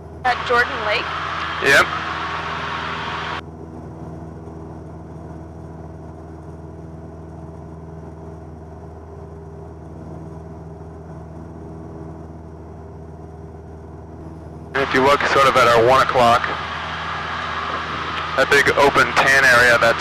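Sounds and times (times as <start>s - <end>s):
light aircraft engine droning: 0.0s - 20.0s.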